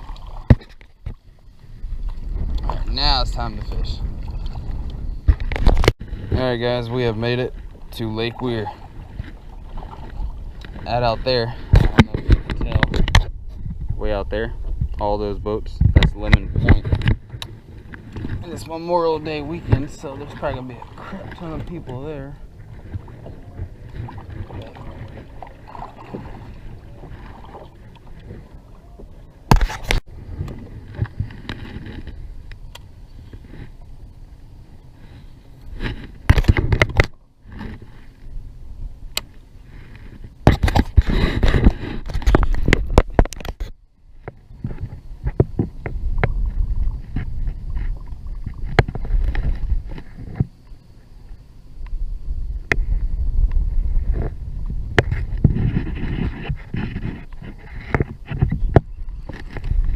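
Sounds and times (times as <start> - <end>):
water sloshing: 0.0 - 13.2, 16.1 - 32.3
wind rumbling on microphone: 0.0 - 59.9.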